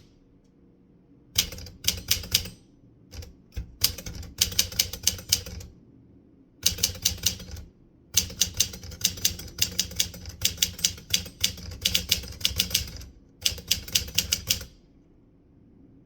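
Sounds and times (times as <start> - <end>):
typewriter keys clacking: 1.4 - 2.6, 3.2 - 5.7, 6.6 - 14.8.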